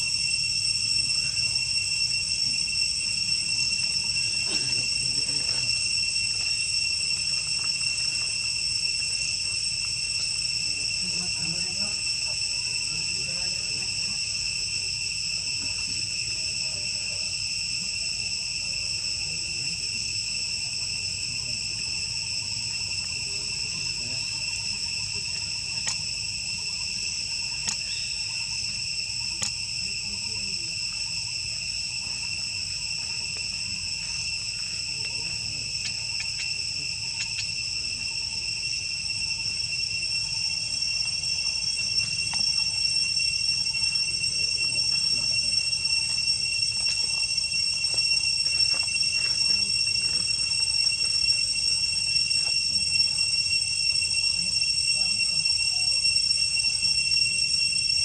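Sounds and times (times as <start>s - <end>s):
insects chirring: 0.0s - 58.0s
faint clicks: 27.6s - 27.8s.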